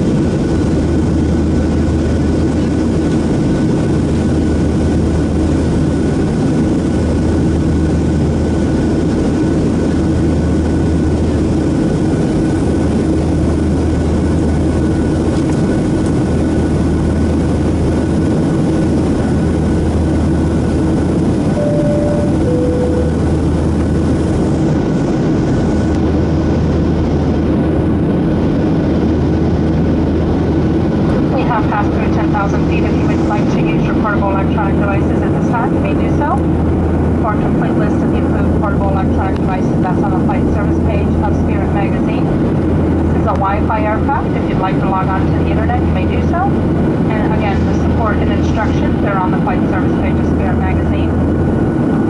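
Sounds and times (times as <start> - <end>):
jet engine cabin roar: 0.0 - 52.0
pulsing low hum: 0.0 - 52.0
two-tone cabin chime: 21.6 - 23.7.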